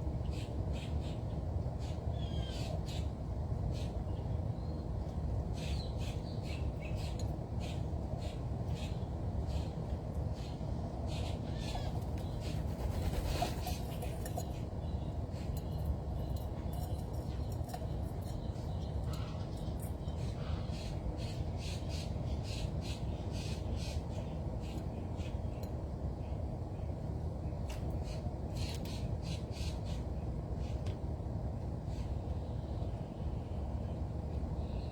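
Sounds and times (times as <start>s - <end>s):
birds calling: 5.5s - 25.6s.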